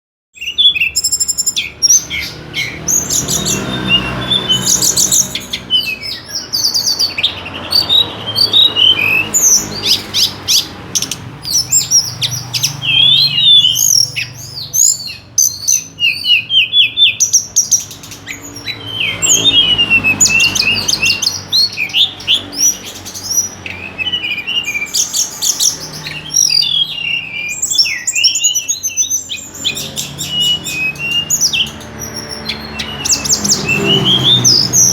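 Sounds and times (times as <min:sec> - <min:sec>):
songbird singing: 0:00.3 - 0:34.9.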